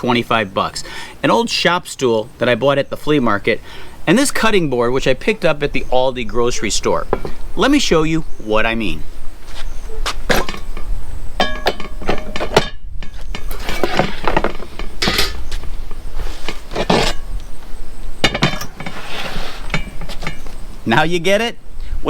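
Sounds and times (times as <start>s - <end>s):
metal parts clinking and knocking: 10.3s - 15.5s.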